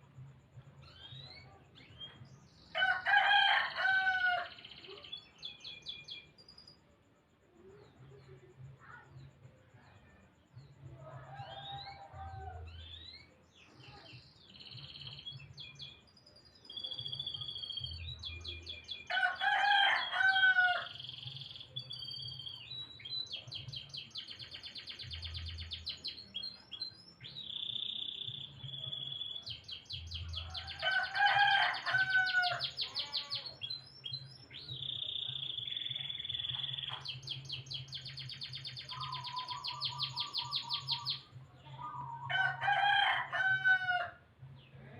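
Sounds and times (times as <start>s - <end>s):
canary singing trills: 0.8s - 2.5s, 4.3s - 6.8s, 11.4s - 19.1s, 19.8s - 42.3s
rooster crowing: 2.8s - 4.6s, 19.1s - 21.0s, 30.3s - 33.5s, 42.1s - 44.2s.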